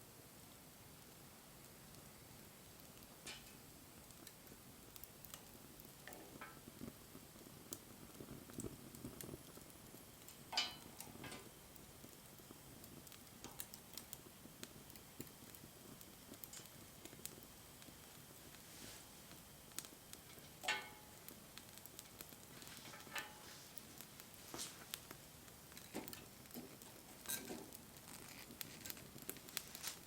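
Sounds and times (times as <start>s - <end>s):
faint hiss: 0.0s - 30.0s
wood fire crackling: 0.0s - 30.0s.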